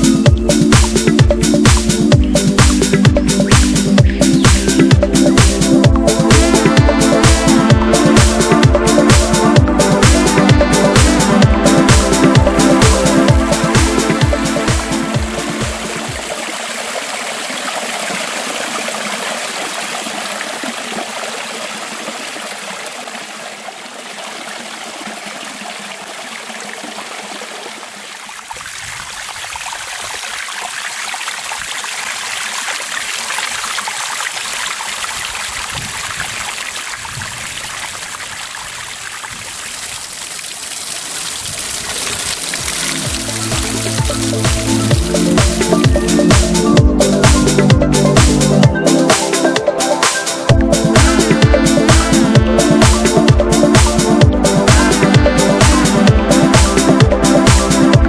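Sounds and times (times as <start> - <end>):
waterfall rushing and splashing: 11.9 - 46.6.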